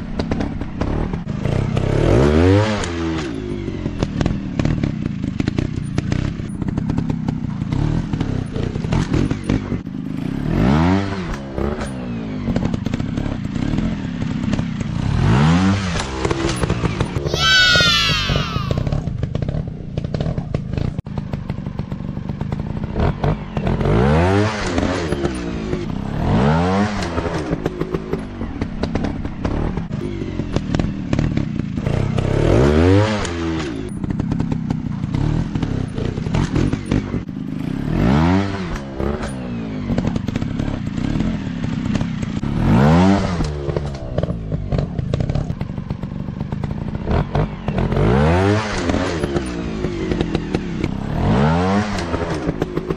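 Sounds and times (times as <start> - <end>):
dirt bike engines revving: 13.2 - 20.9.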